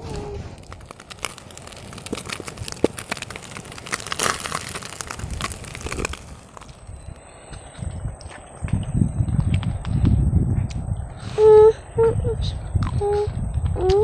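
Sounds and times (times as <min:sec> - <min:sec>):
plastic sheeting crinkling: 0:00.0 - 0:06.8.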